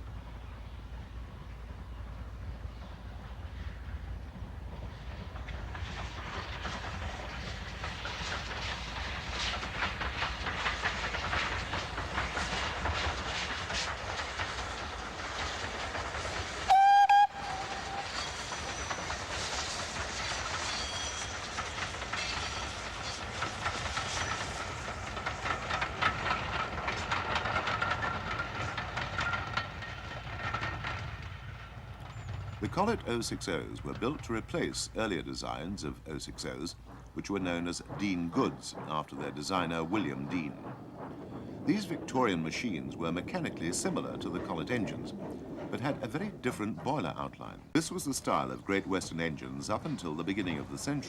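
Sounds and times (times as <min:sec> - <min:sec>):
rail noise: 0:00.0 - 0:51.0
steam locomotive exhaust: 0:00.0 - 0:51.0
locomotive whistle blast: 0:16.7 - 0:18.2.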